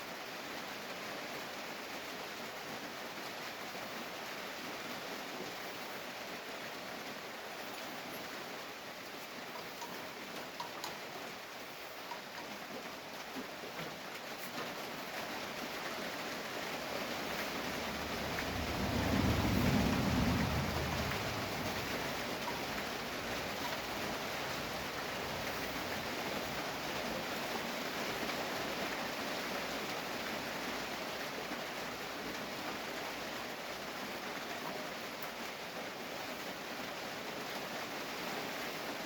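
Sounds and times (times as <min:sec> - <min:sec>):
rain hiss: 0:00.0 - 0:39.0
low rumble: 0:17.5 - 0:25.4.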